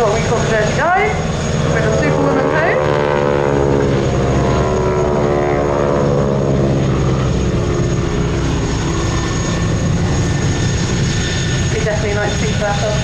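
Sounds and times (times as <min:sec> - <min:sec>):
propeller aircraft engines droning: 0:00.0 - 0:13.0.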